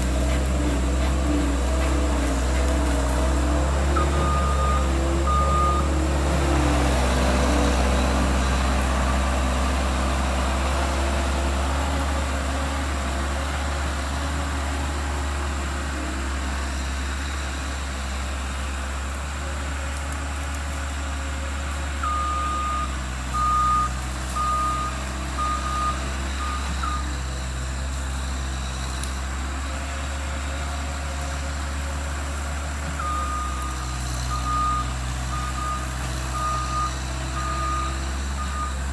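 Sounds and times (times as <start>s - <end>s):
skid steer engine running: 0.0s - 38.9s
reverse alarm beeping: 4.0s - 6.0s, 22.0s - 27.1s, 33.0s - 38.8s.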